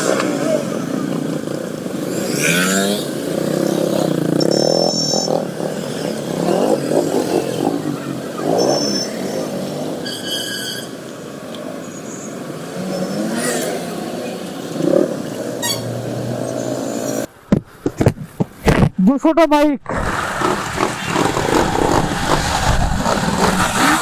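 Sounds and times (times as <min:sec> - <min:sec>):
motorcycles revving: 0:00.0 - 0:17.3, 0:19.9 - 0:24.0
horn beeps: 0:04.4 - 0:05.4, 0:10.0 - 0:11.0, 0:15.6 - 0:16.0.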